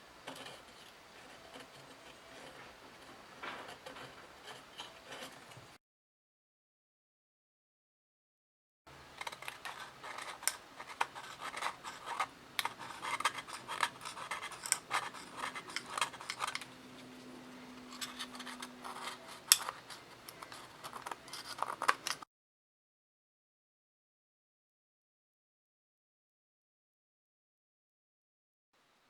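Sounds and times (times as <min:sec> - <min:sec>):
blade scraping ceramic: 0:00.2 - 0:05.8, 0:09.2 - 0:22.2.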